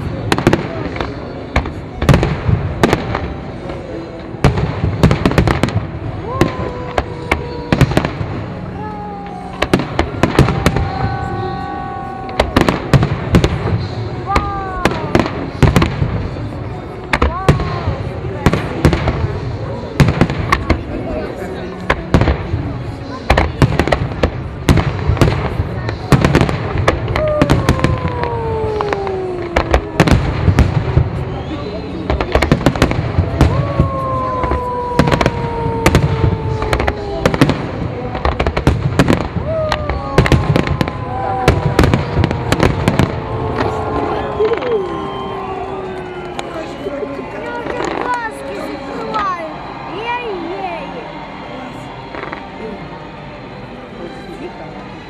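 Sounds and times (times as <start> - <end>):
fireworks crackle and rumble: 0.0 - 55.0
steady whistling tone: 31.0 - 32.3.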